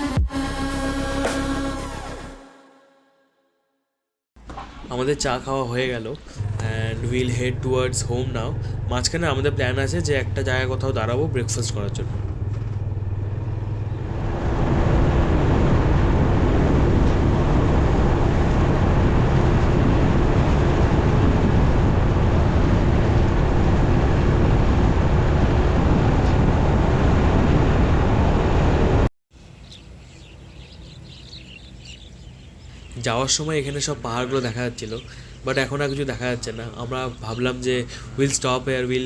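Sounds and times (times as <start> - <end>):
wind and road noise: 4.4 - 39.0
motorcycle engine running: 6.4 - 16.7.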